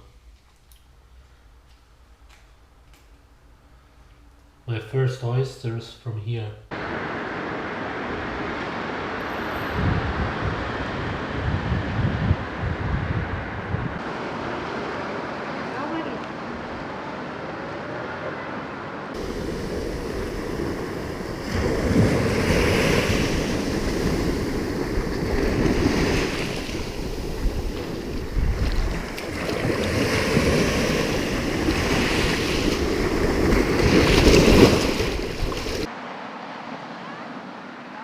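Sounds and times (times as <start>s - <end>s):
sea waves washing ashore: 6.7s - 38.0s
wind buffeting microphone: 6.8s - 15.6s, 19.2s - 35.9s.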